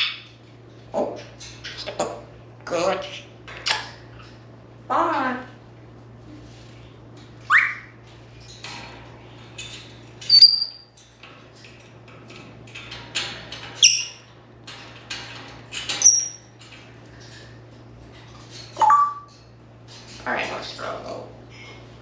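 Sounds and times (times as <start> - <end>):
parrot whistling and chirping: 7.5 - 8.0, 10.3 - 10.8, 18.8 - 19.3.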